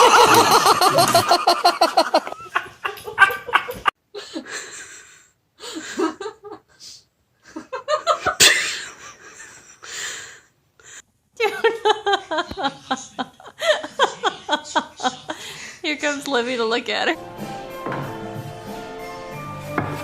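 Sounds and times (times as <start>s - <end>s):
person laughing hard: 0.0s - 3.9s.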